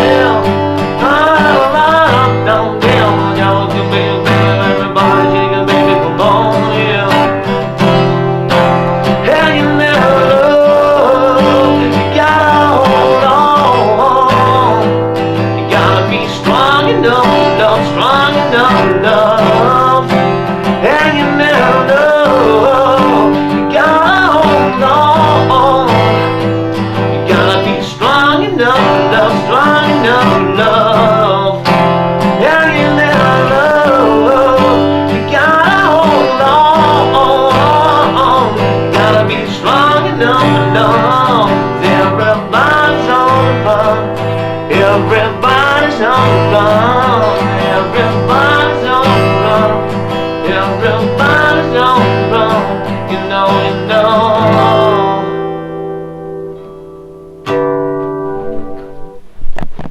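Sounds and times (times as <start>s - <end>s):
acoustic guitar strumming: 0.0s - 59.9s
bending melody line: 0.0s - 59.9s.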